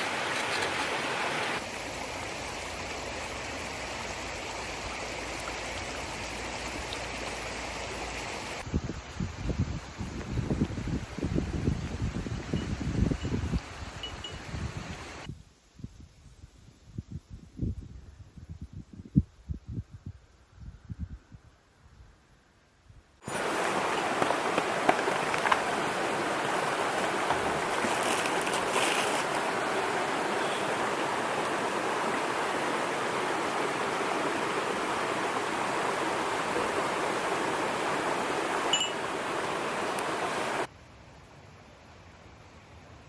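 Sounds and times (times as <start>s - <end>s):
water rushing: 0.0s - 8.7s, 23.2s - 40.7s.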